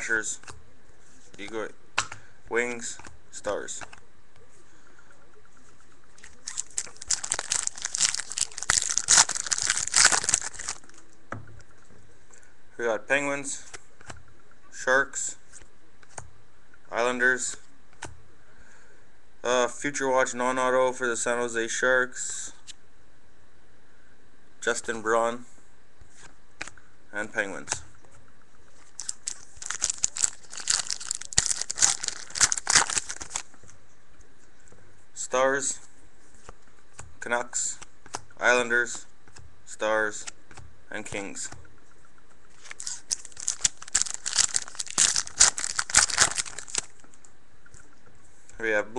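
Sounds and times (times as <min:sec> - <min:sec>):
foil wrapper crinkling and tearing: 0:06.2 - 0:11.0, 0:28.9 - 0:33.5, 0:42.6 - 0:47.0.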